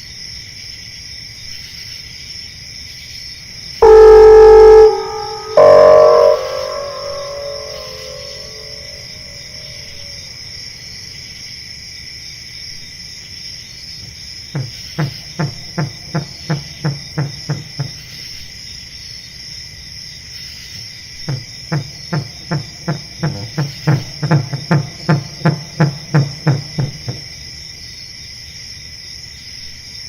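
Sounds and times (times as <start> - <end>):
high insect chirring: 3.8 - 9.9
low pulsed calls: 3.8 - 10.2.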